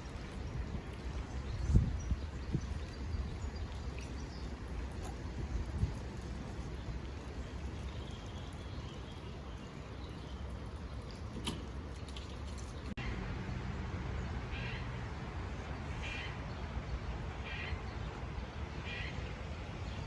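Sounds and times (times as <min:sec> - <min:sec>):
bird harsh calls: 0:14.5 - 0:15.2, 0:15.8 - 0:16.5, 0:17.4 - 0:17.9.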